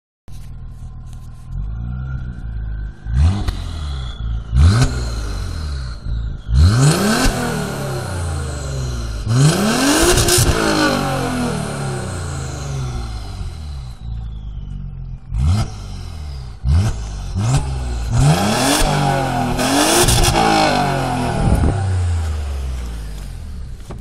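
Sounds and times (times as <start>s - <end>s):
car engine idling and revving: 0.3s - 24.0s.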